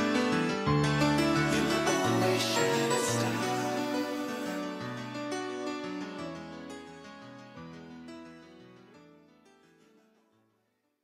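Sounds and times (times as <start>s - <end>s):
background music with keyboard: 0.0s - 10.4s.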